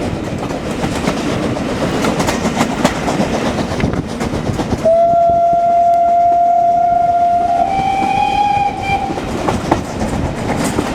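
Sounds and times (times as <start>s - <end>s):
train rumbling on rails: 0.0s - 10.9s
steam locomotive whistle: 4.8s - 9.4s.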